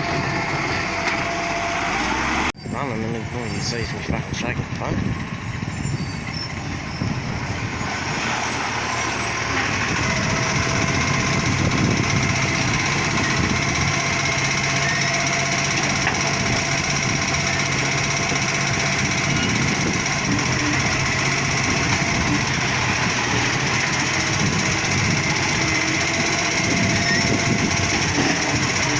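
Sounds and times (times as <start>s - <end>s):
garbage truck diesel engine: 0.0s - 28.9s.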